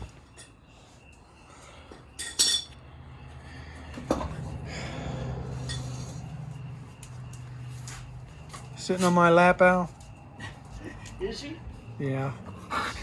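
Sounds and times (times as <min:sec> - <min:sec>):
ringing metal clink: 0:02.2 - 0:02.8.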